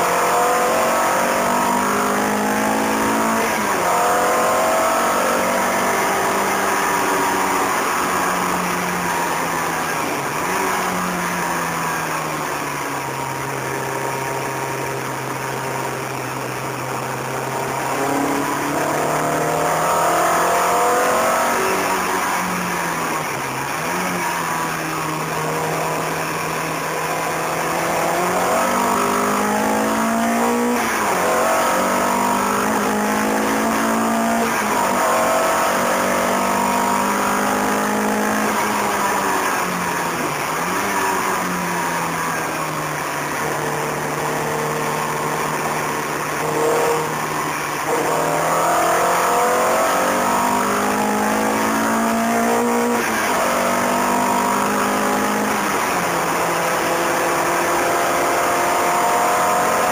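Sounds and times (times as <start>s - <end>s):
car engine revving hard: 0.0s - 59.9s
road and wind noise: 0.0s - 59.9s.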